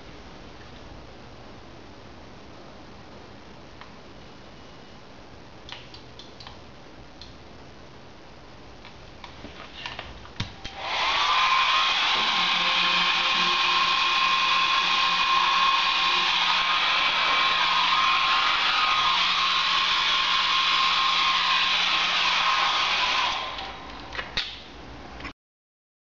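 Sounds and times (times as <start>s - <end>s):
hair dryer blowing: 10.6s - 24.1s.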